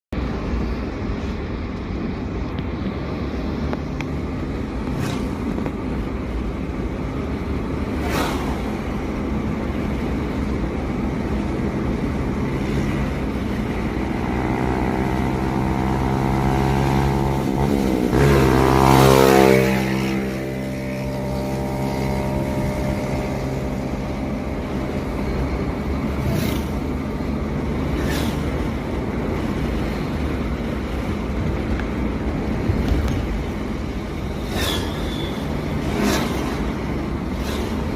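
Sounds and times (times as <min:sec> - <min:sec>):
vehicle road and engine noise: 0:00.0 - 0:37.9
vehicle passing close by: 0:12.3 - 0:30.1, 0:34.3 - 0:37.9.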